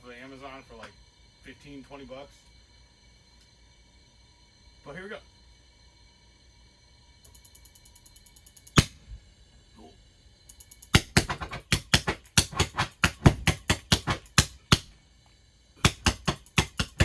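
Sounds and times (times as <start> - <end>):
spark igniter clicking: 7.2 - 9.0, 10.5 - 14.9.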